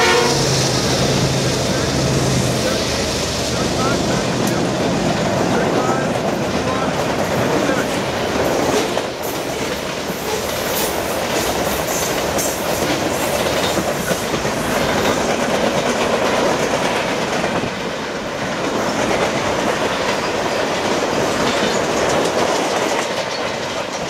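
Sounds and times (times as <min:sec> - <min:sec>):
steel wheels rumbling on rail: 0:00.0 - 0:24.0
wheels clicking over rail joints: 0:00.1 - 0:24.0.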